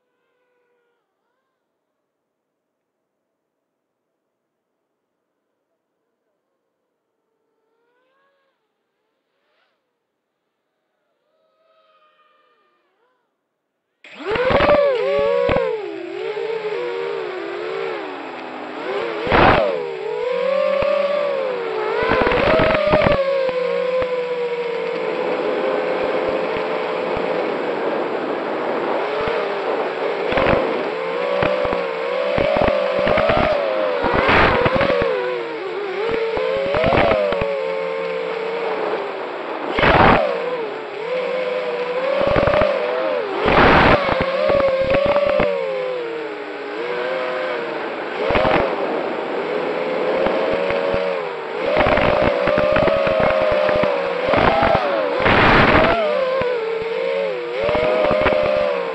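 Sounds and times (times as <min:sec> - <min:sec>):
racing drones whining: 0:14.1 - 0:58.9
short rushes of noise: 0:14.1 - 0:58.9.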